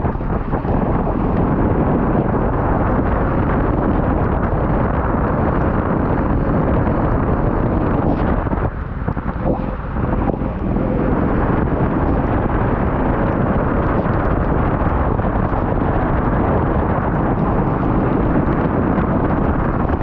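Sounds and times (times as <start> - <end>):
off-road vehicle engine rumble: 0.0 - 20.0
wind buffeting microphone: 0.0 - 20.0.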